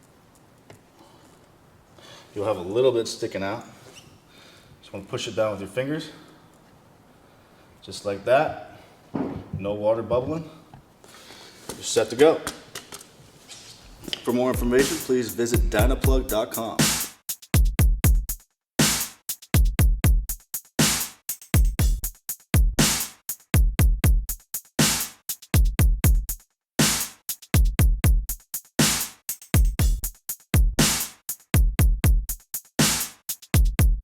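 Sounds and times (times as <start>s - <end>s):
electronic drum-machine beat: 14.1s - 34.0s.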